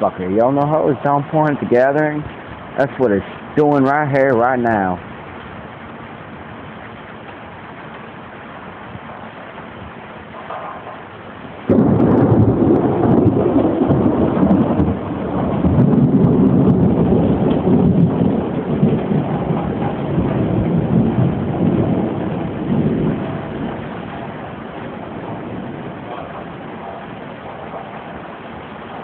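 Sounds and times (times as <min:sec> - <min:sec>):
heavy rain pouring: 0:00.0 - 0:29.0
thunder rumbling: 0:08.6 - 0:29.0.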